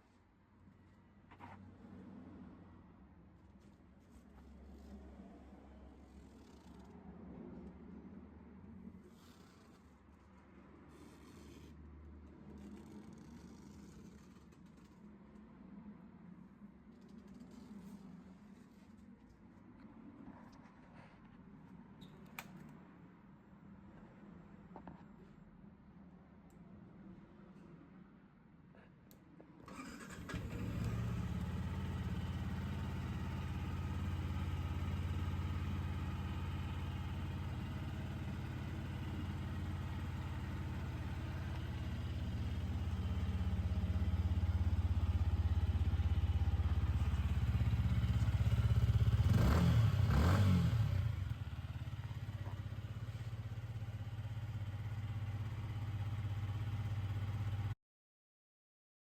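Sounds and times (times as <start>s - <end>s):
motorcycle engine idling: 29.9s - 57.7s.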